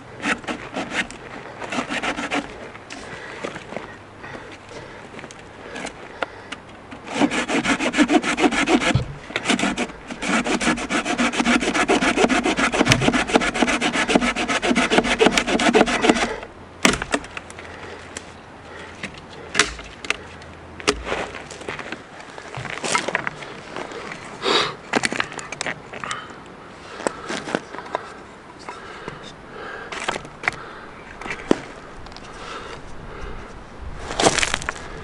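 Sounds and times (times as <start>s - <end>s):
rapid scraping strokes: 0.0s - 3.1s, 7.0s - 16.4s.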